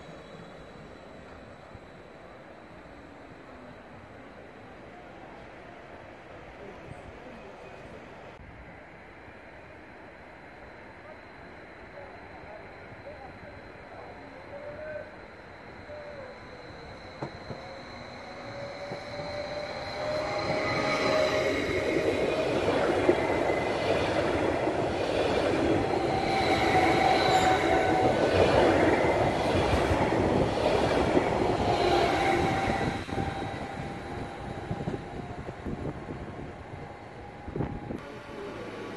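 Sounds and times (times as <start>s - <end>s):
train wheel and rail rumble: 0.0s - 38.9s
steady high tones: 10.6s - 37.5s.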